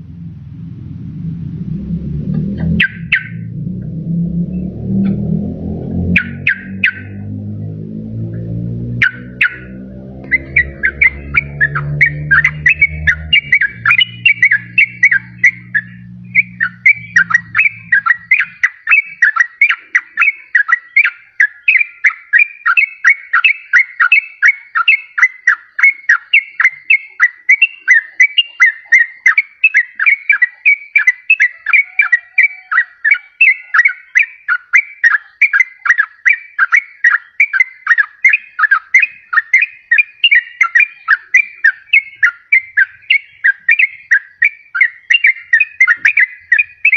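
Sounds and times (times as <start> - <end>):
low steady hum: 0.0 - 18.9
bulbul bubbling whistled song: 2.6 - 3.5, 5.7 - 7.4, 9.0 - 46.9.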